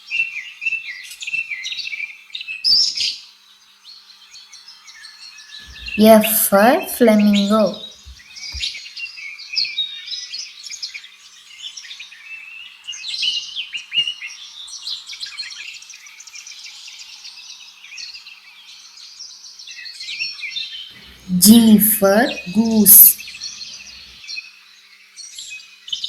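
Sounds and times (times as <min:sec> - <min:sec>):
birds chirping: 0:05.7 - 0:08.6.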